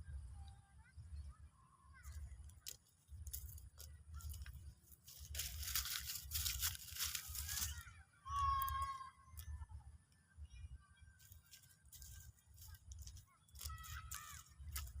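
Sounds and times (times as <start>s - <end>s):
loud rustling crackling: 2.6s - 7.9s
faint bird chirps: 7.2s - 15.0s.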